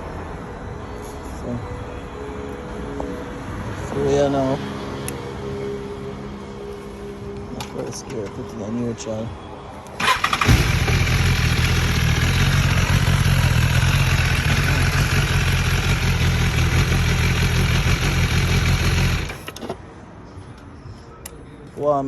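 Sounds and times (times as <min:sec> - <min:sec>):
motorcycle engine idling: 0:10.0 - 0:19.6.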